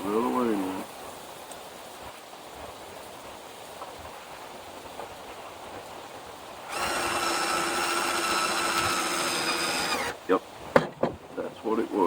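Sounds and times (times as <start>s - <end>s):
steady low hiss: 0.0s - 12.0s
electric drill whining: 6.6s - 10.2s.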